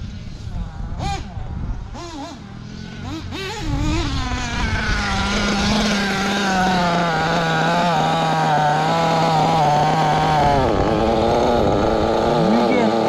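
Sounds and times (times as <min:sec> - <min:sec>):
model buggy engine revving: 0:00.0 - 0:13.0.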